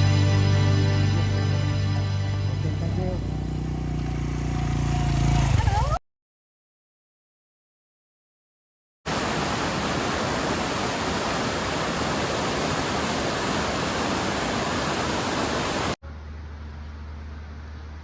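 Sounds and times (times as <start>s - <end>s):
low hum: 16.0s - 18.0s.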